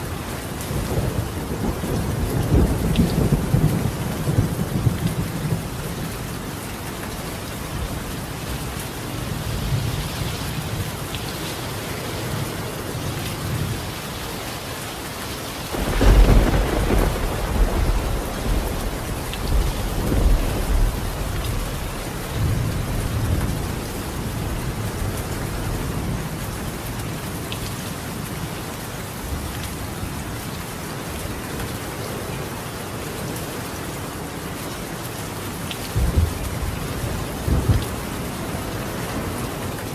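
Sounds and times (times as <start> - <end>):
rain on a tiled roof: 0.0 - 39.9
thunder rumbling: 0.7 - 6.1, 15.7 - 26.4, 36.0 - 39.9.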